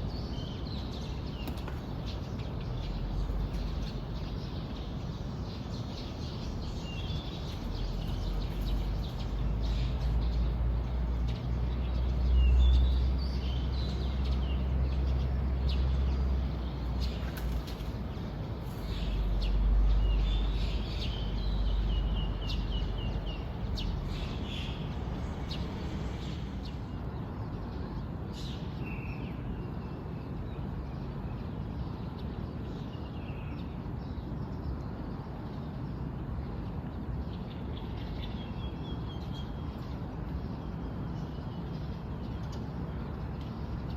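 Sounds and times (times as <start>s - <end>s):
small birds chirping: 0.0s - 29.8s.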